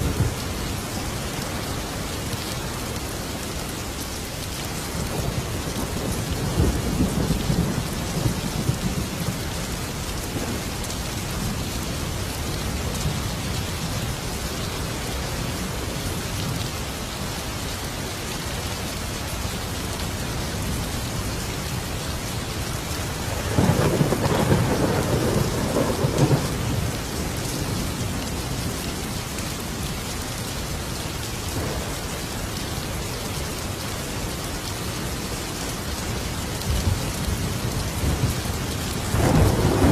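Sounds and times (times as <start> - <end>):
thunder rumbling: 0.0 - 1.6, 23.0 - 29.0, 31.6 - 32.4, 36.6 - 39.9
heavy rain: 0.0 - 39.9.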